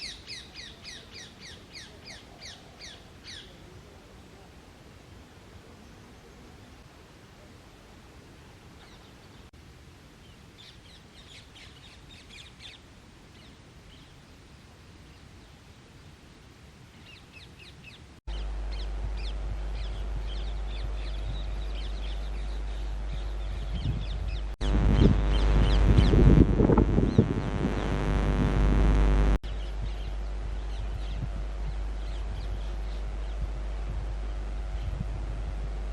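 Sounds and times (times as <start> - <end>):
steady low rumble: 18.3 - 35.9.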